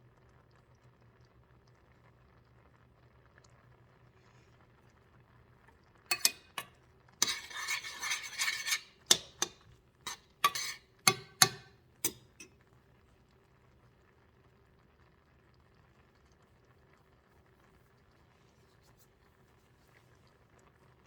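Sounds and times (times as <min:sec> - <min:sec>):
cutlery clinking against dishes: 0:06.1 - 0:12.5
cutlery scraping dishes: 0:06.1 - 0:12.5.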